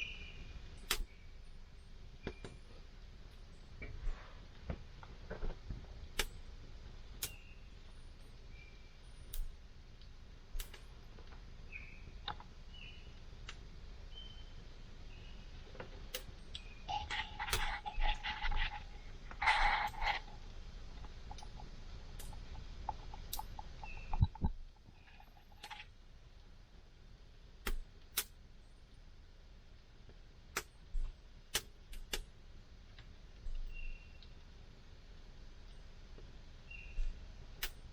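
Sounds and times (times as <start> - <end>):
campfire crackling and popping: 16.9 - 25.7.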